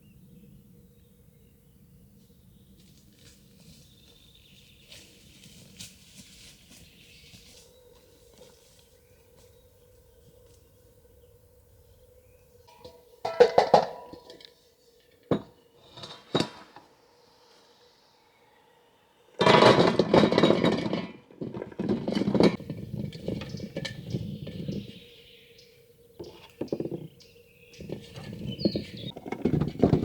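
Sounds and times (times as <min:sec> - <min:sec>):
kitchenware clinking and clattering: 0:12.7 - 0:14.5, 0:19.4 - 0:24.6.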